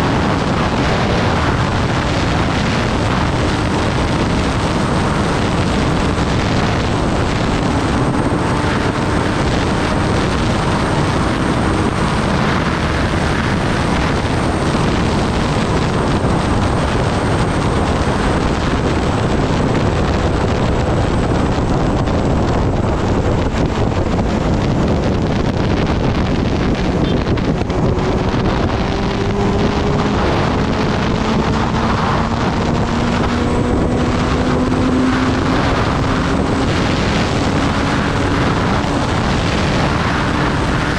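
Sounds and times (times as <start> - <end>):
motorcycle engine: 0.0 - 40.9
wind rushing on microphone: 0.0 - 40.9.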